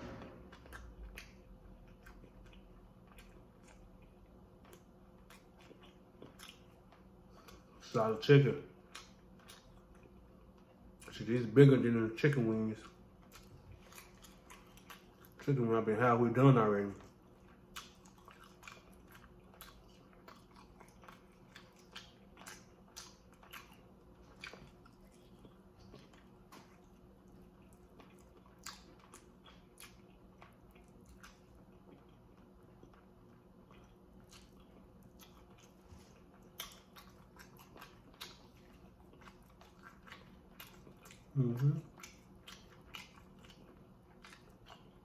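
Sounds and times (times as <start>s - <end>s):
chewing and biting: 0.0s - 45.0s.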